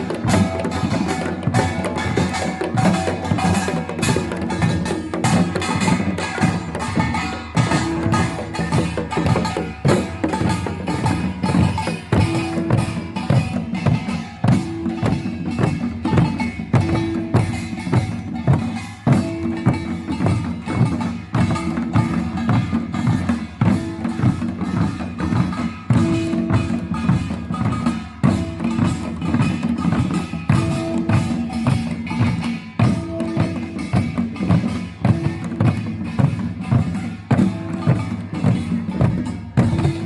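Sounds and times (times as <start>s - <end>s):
drums in fast rhythm: 0.0s - 40.0s
small gongs: 0.0s - 40.0s.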